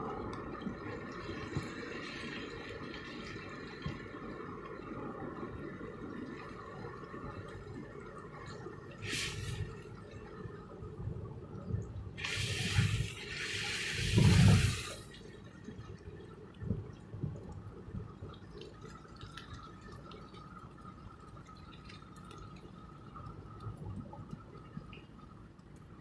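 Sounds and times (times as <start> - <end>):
water trickling: 0.0 - 26.0
water rushing: 9.0 - 9.9, 12.2 - 15.2
water dripping: 11.7 - 26.0.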